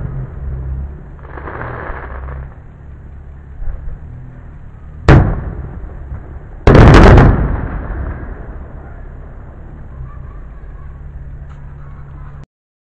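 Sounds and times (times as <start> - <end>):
fireworks shells bursting: 1.2 - 2.6.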